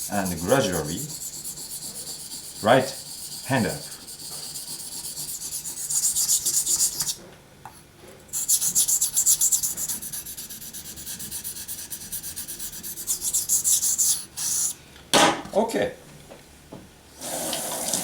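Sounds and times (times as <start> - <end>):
knife scraping on whetstone: 0.0 - 7.2, 8.4 - 14.8.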